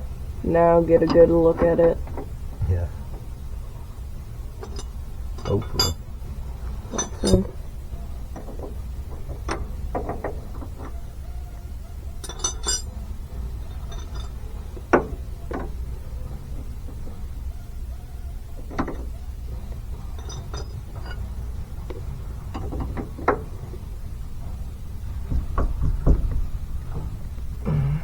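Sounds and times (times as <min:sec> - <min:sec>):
steady low hum: 0:00.0 - 0:28.0
wrenches clinking on metal: 0:00.8 - 0:02.2, 0:04.5 - 0:06.1, 0:06.7 - 0:07.7, 0:12.1 - 0:17.1, 0:18.6 - 0:24.5.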